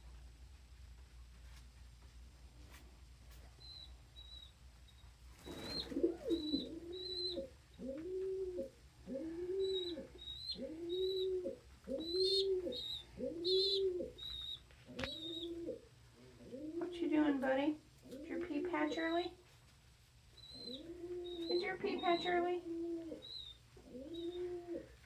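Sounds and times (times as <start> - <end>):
birds chirping high: 3.6 - 8.0, 8.6 - 15.8, 20.4 - 24.8
pigeon cooing: 5.4 - 17.4, 18.0 - 19.3, 20.4 - 25.0.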